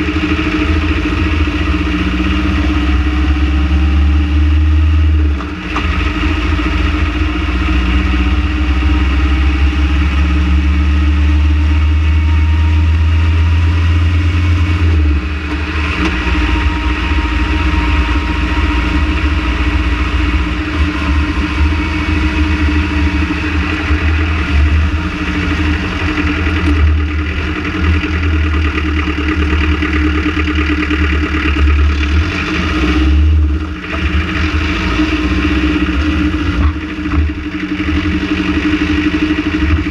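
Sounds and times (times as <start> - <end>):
van engine idling: 0.0 - 39.9.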